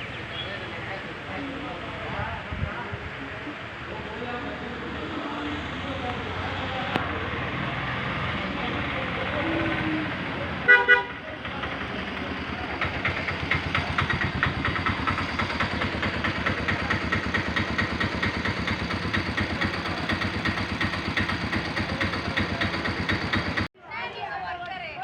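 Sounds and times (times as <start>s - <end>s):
horn toots: 10.6s - 11.4s
engine running with pulsing beat: 11.1s - 23.7s.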